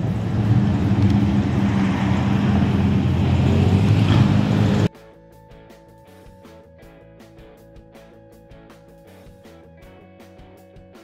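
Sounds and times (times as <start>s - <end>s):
car engine exhaust drive-by: 0.0s - 4.9s.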